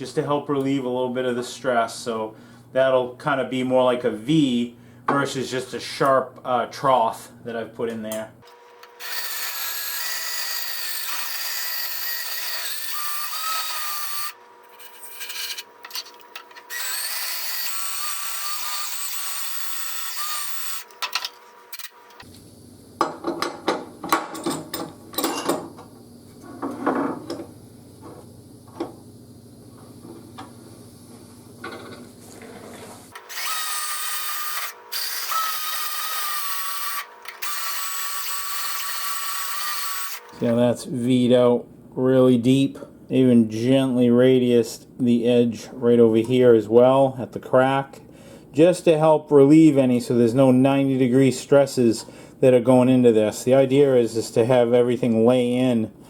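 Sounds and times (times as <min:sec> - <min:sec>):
electric drill grinding metal: 0:08.5 - 0:22.3, 0:33.2 - 0:40.4.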